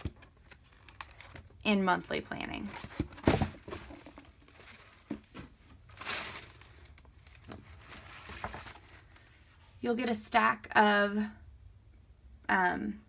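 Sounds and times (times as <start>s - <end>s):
paper rustling and crinkling: 0.0s - 1.5s, 2.6s - 9.8s.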